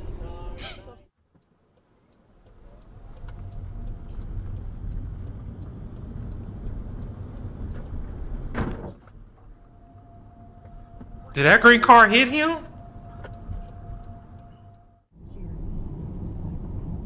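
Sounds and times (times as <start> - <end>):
car road and engine rumble: 1.4 - 17.0.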